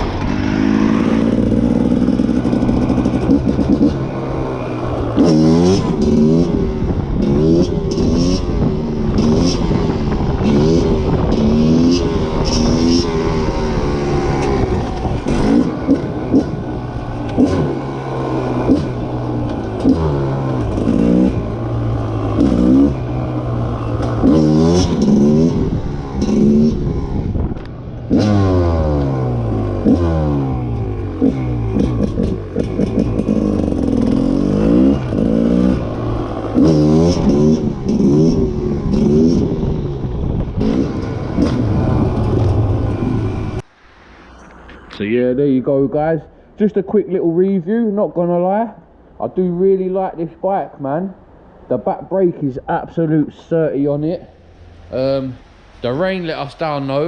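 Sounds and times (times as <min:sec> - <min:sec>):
two-stroke motorcycle engine revving: 0:00.0 - 0:43.6.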